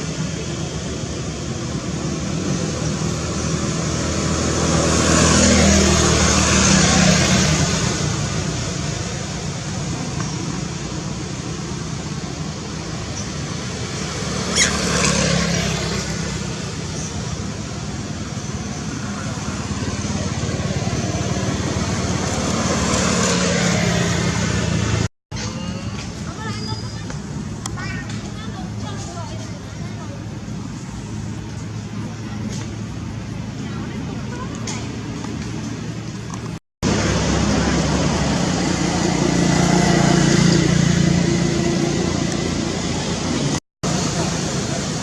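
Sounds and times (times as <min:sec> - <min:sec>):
vehicle passing: 0:00.0 - 0:25.1, 0:36.8 - 0:45.0
road noise: 0:00.0 - 0:45.0.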